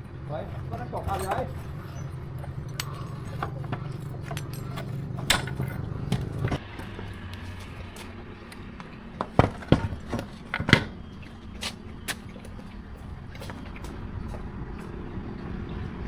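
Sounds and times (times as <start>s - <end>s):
low steady hum: 0.0s - 16.0s
metal tools clinking and knocking: 0.5s - 7.1s, 9.3s - 11.6s.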